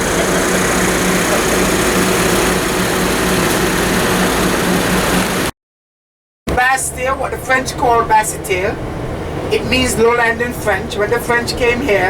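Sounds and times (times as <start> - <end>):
vehicle engine running: 0.0 - 5.5.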